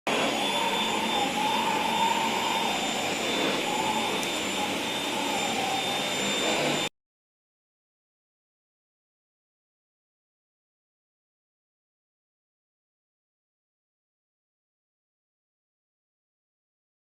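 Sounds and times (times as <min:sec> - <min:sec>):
vacuum cleaner running: 0:00.1 - 0:06.9.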